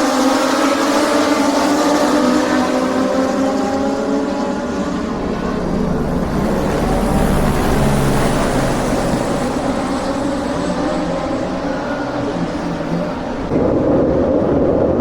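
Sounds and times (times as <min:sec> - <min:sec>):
vehicle engine running: 0:04.2 - 0:13.6.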